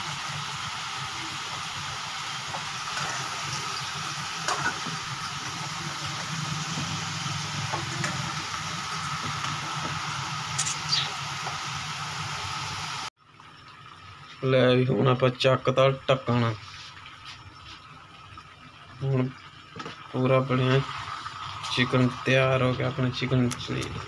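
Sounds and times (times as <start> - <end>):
food sizzling in pan: 0.0 - 13.1.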